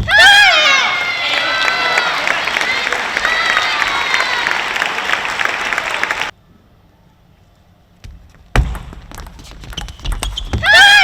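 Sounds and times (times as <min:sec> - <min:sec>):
arena crowd cheering: 0:00.0 - 0:06.4.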